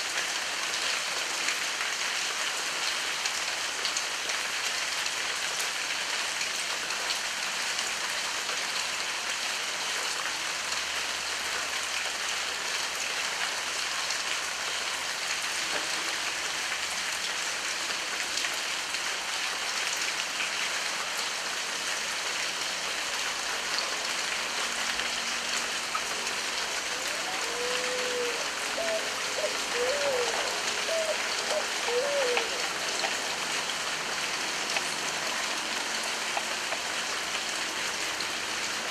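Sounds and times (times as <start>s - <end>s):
heavy rain falling: 0.0s - 38.9s
animal calls: 26.9s - 32.6s.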